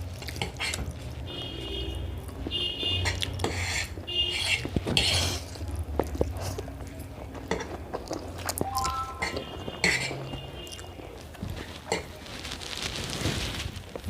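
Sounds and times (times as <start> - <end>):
people chewing: 0.0 - 1.2, 2.2 - 12.4
cutlery clinking on plates: 8.6 - 10.3.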